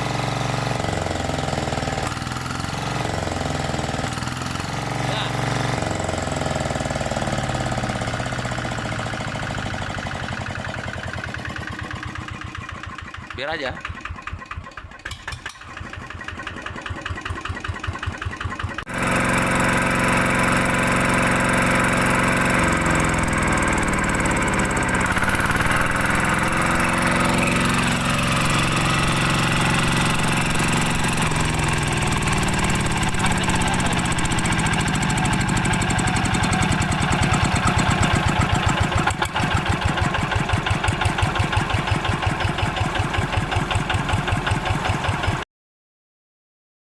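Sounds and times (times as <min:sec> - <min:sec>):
diesel engine running: 0:00.0 - 0:45.4.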